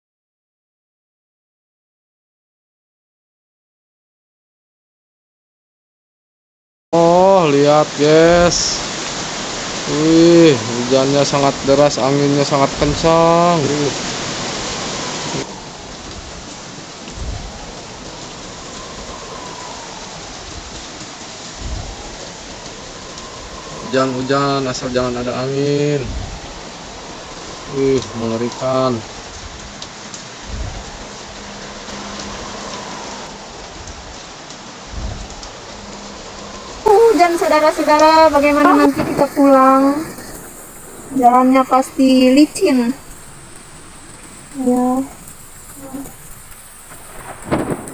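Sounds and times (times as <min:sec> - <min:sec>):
heavy rain hissing: 0:07.0 - 0:47.9
strong wind: 0:07.0 - 0:47.9
low rumble: 0:14.4 - 0:47.9.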